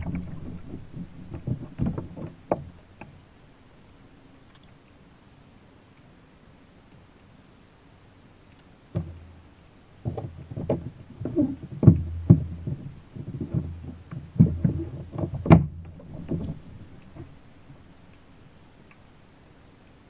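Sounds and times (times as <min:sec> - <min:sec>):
low rumble: 0:00.0 - 0:03.0
knocks against plastic kayak: 0:09.0 - 0:09.2, 0:10.0 - 0:16.6.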